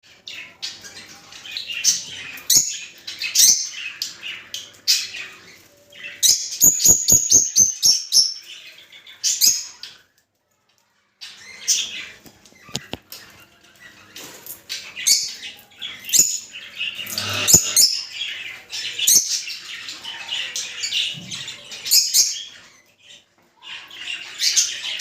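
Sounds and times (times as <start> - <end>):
lovebirds chirping and squeaking: 0.3 - 10.0, 11.2 - 25.0.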